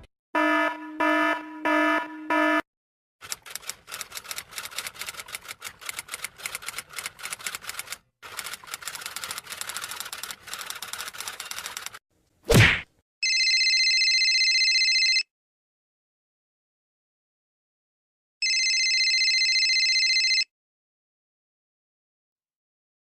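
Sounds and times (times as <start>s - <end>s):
rapid clattering clicks: 3.2s - 12.0s.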